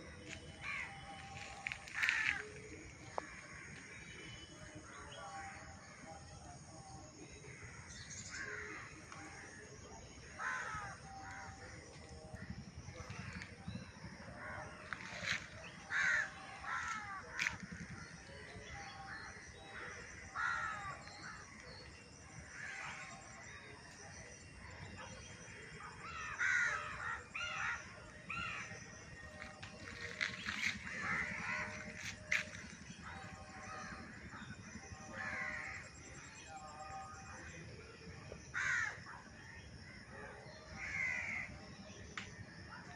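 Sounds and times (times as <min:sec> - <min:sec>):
birds calling: 0:00.0 - 0:04.2, 0:24.8 - 0:35.8.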